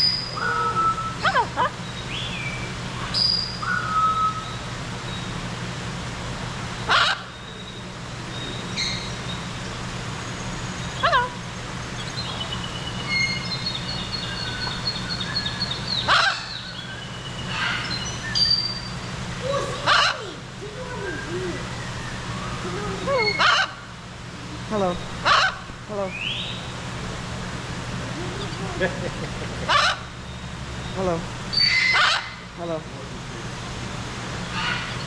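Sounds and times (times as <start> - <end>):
bird trill: 0.0 - 5.3, 6.9 - 9.5, 11.9 - 20.3, 29.7 - 32.4
birds whistling and chirping: 0.0 - 5.4, 7.0 - 23.8, 26.1 - 26.8, 29.7 - 32.4
bird squawk: 6.9 - 7.4, 13.9 - 16.7, 19.4 - 20.3, 23.1 - 23.8, 25.2 - 25.6, 29.6 - 30.1, 31.5 - 32.5, 34.5 - 35.0.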